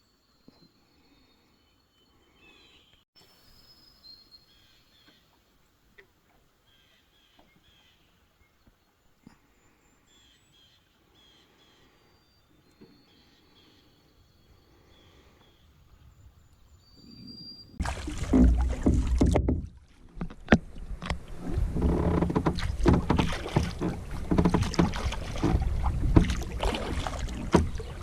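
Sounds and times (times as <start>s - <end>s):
wind rumble on microphone: 15.7s - 28.0s
paddle strokes splashing water: 17.8s - 28.0s
sharp knocks on canoe: 17.8s - 28.0s.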